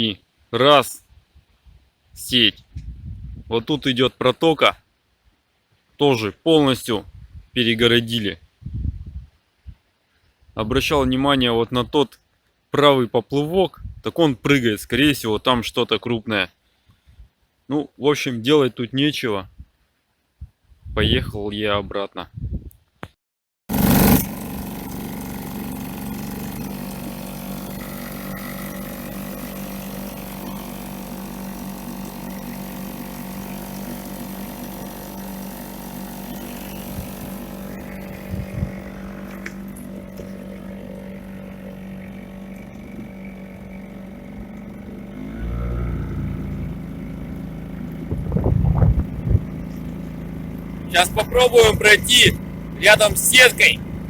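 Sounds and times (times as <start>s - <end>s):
outboard motor running: 23.7s - 54.0s.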